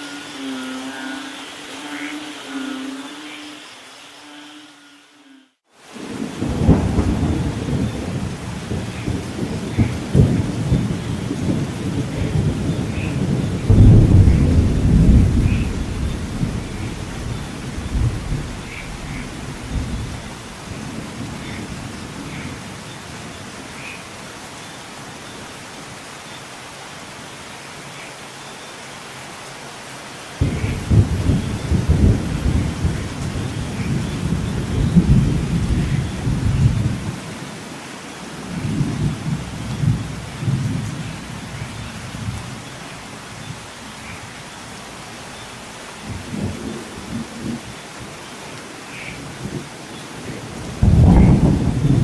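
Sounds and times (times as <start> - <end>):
steady rain: 0.0 - 52.0
thunder rumbling: 6.0 - 23.6, 30.4 - 37.4, 38.4 - 43.6, 49.3 - 52.0.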